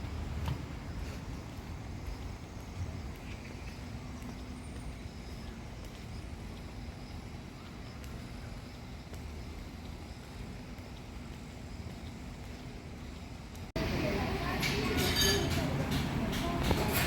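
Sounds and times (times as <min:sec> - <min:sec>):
low rumble of traffic: 0:00.0 - 0:17.0.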